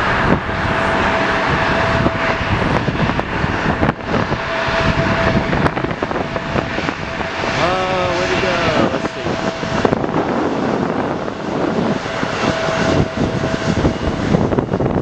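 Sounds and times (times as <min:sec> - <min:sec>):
jet airliner engine: 0:00.0 - 0:15.0
wind buffeting microphone: 0:00.0 - 0:15.0.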